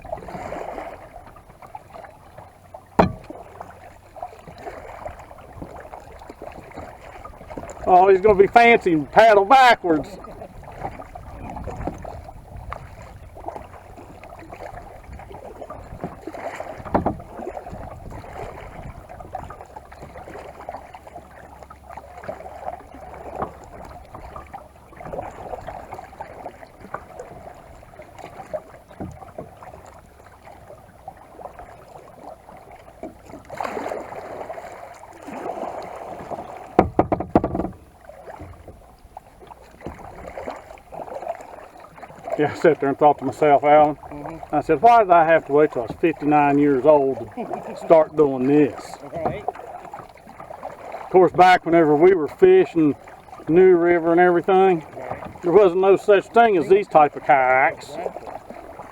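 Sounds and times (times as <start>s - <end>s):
kayak paddle strokes in water: 0.0s - 58.9s
low thumps: 3.0s - 3.4s.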